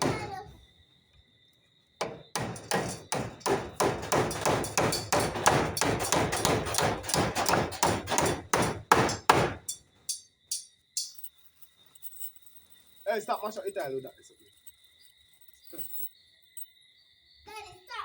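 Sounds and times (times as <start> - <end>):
hammer driving nails: 2.0 - 9.8.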